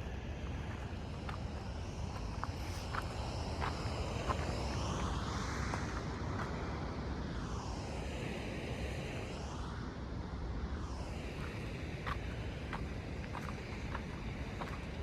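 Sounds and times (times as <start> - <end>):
aircraft passing overhead: 0.0 - 15.0
wind: 0.0 - 15.0
footsteps on a trail: 0.6 - 4.5, 11.4 - 15.0.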